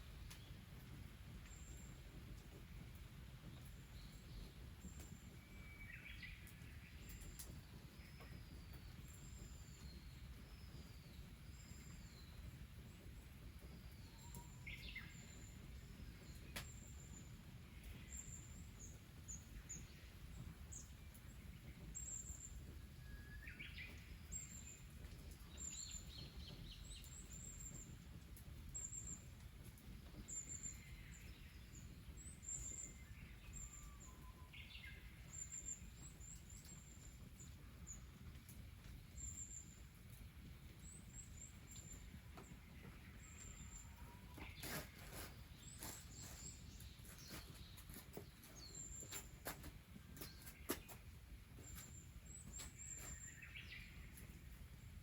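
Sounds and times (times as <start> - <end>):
birds chirping: 40.8 - 54.3.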